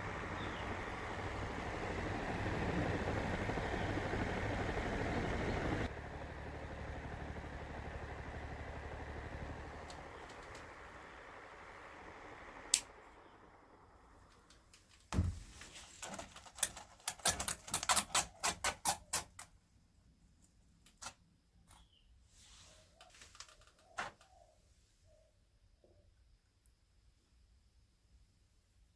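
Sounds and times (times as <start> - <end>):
thump: 15.1 - 15.6.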